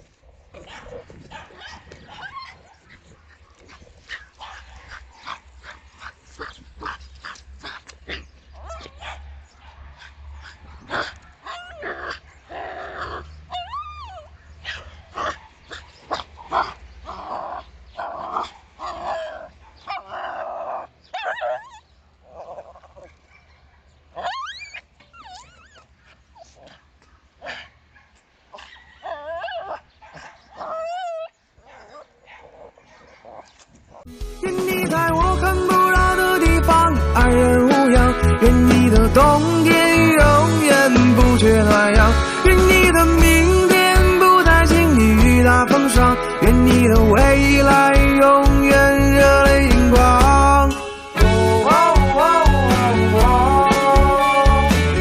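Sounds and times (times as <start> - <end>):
small dog barking and yipping: 0.5 - 12.4, 13.1 - 21.9, 22.5 - 34.1
dog whining: 13.0 - 14.3, 24.2 - 26.5, 30.6 - 31.4.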